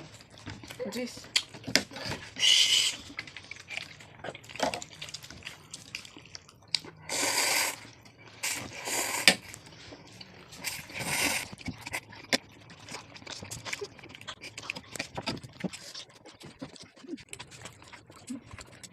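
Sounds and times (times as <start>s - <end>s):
wet chewing and lip smacks: 2.8s - 7.0s, 10.2s - 18.9s
slurping: 6.8s - 18.9s.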